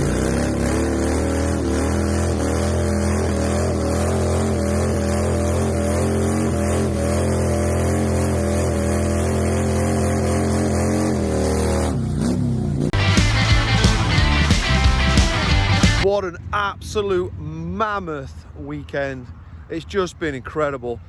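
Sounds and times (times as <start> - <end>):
motorcycle engine revving: 0.0 - 16.1.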